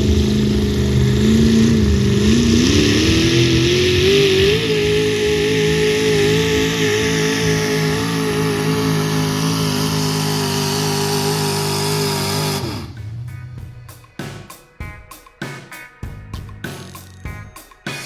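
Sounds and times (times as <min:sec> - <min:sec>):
music with drum beat: 0:00.0 - 0:07.9, 0:12.7 - 0:18.0
truck engine revving loud: 0:00.0 - 0:13.8.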